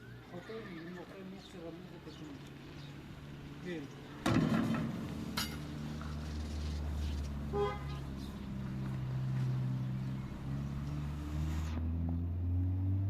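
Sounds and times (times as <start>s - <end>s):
vehicle engine running at low revs: 4.6s - 13.0s
car horn toot: 7.4s - 8.2s.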